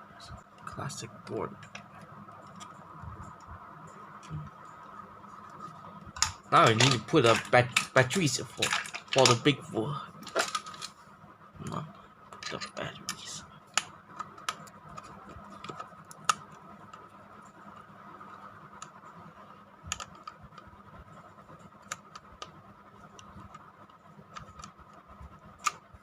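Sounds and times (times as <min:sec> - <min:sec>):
faint steady hum: 0:00.0 - 0:26.0
toy train clicks and scrapes: 0:06.6 - 0:09.4.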